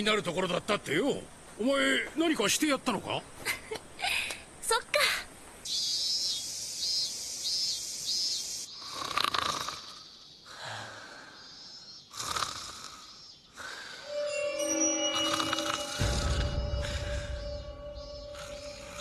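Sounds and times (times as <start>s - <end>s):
heavy snoring-like breaths: 12.1s - 14.1s
short high chirps: 14.1s - 19.0s.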